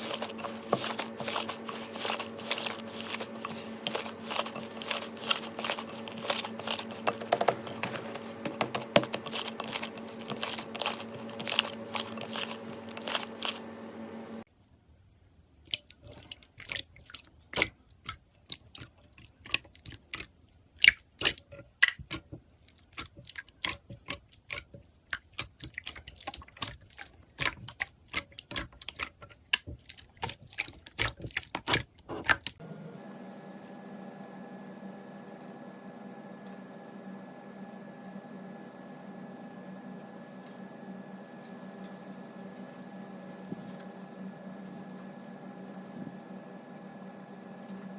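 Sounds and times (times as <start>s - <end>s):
steady hum: 0.0s - 14.5s.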